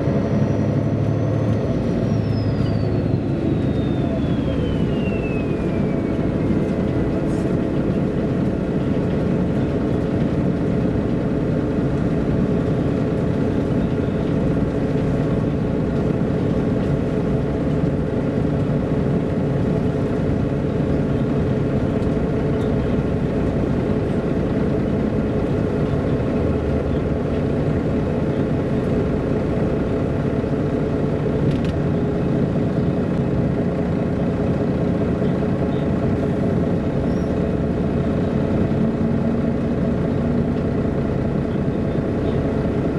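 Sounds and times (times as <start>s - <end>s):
bus diesel engine drone: 0.0s - 42.9s
road noise: 0.0s - 42.9s.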